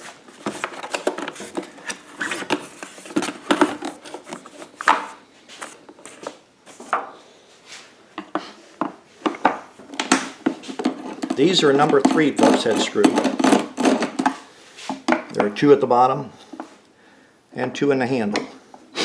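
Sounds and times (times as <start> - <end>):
tools on plastic housing: 8.2 - 14.4.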